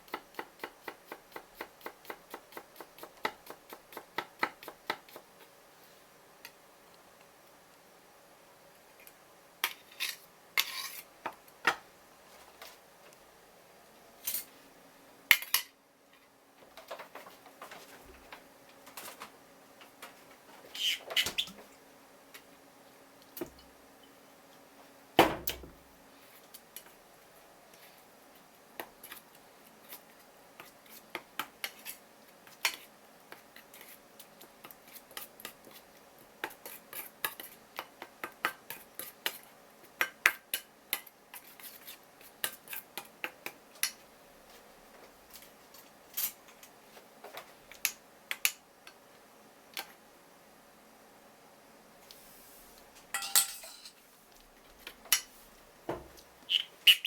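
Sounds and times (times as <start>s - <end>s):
utensils and dishes clinking: 53.1s - 54.0s.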